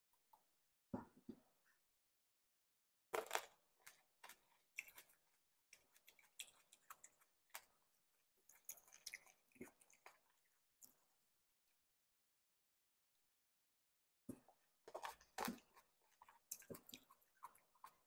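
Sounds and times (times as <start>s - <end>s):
chewing with wet clicks: 3.9s - 7.8s, 8.4s - 11.2s, 14.9s - 18.0s.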